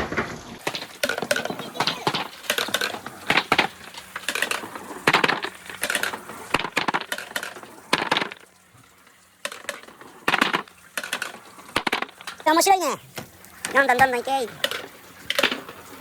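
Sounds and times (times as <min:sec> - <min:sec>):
marbles rattling along track: 0:00.6 - 0:12.7.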